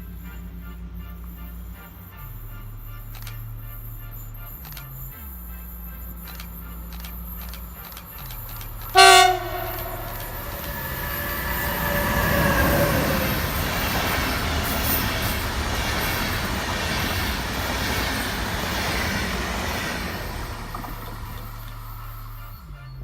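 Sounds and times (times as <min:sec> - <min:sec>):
train rolling on rails: 0:00.0 - 0:23.0
squealing wheels: 0:04.6 - 0:23.0
short loud tone: 0:09.0 - 0:13.3.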